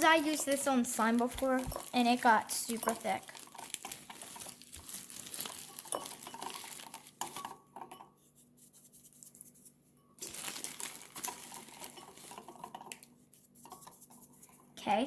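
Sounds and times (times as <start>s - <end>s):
rustling: 0.0s - 7.6s.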